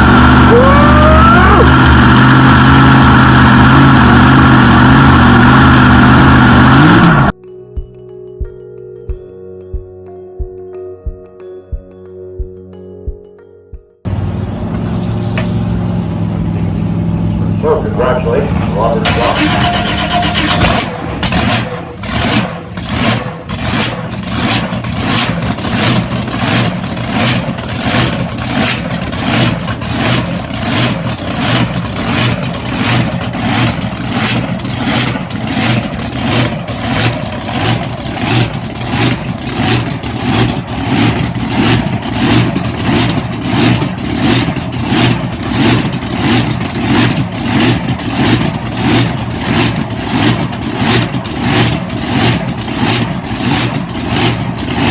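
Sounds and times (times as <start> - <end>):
boat engine idling with lope: 14.8 - 54.9.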